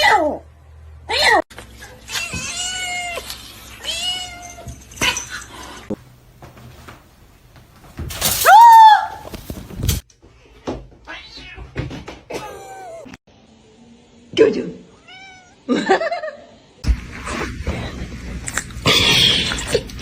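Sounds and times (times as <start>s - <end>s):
cat meowing: 15.0s - 15.6s.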